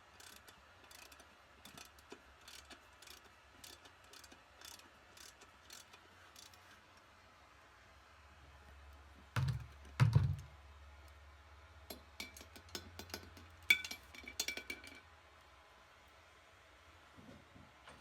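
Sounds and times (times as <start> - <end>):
metal tools clicking and clinking: 0.2 - 6.6.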